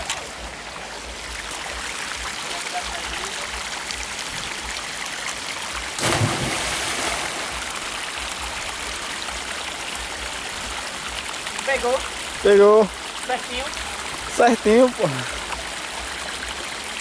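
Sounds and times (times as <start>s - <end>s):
waterfall rushing: 0.0s - 17.0s
person splashing into water: 6.0s - 7.6s.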